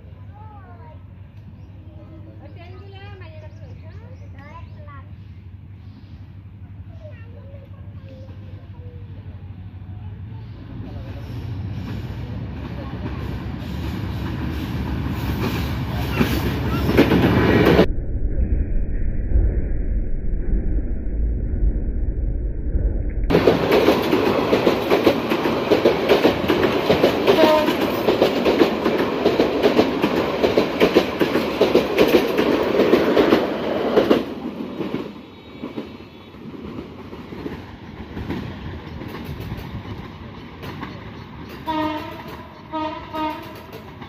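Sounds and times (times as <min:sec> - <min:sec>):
train wheels clattering over rail joints: 0:23.3 - 0:35.0
short train honks: 0:27.3 - 0:28.0, 0:41.6 - 0:43.6.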